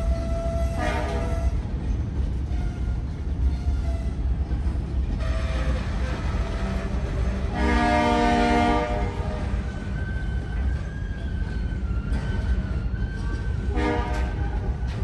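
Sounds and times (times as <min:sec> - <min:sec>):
freight train rumbling past: 0:00.0 - 0:15.0
locomotive horn blast: 0:00.2 - 0:01.6, 0:05.2 - 0:09.7, 0:13.6 - 0:14.6.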